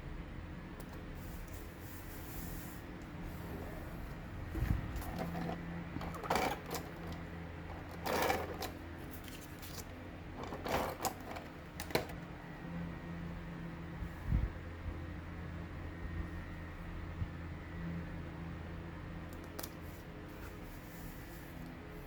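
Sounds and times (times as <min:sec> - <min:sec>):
paper rustling and scraping: 0:04.8 - 0:12.2.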